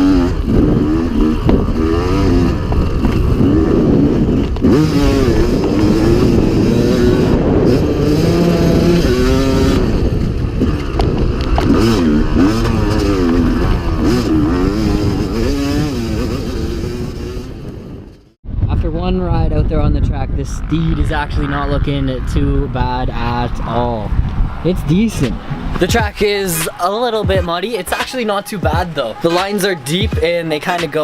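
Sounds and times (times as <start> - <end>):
dirt bike engine revving: 0.0 - 18.4.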